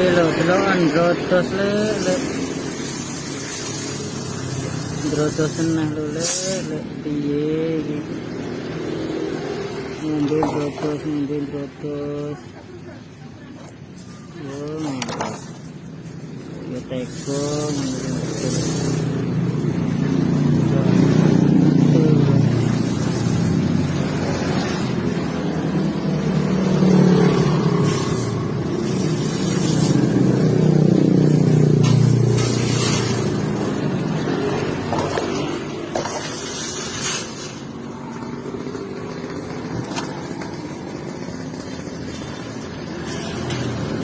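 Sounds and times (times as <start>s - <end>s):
vehicle engine humming: 0.0s - 44.0s.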